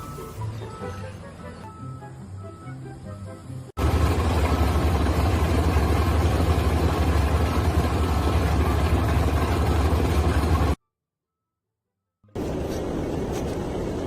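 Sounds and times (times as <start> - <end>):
heavy engine rumbling: 0.0 - 10.8.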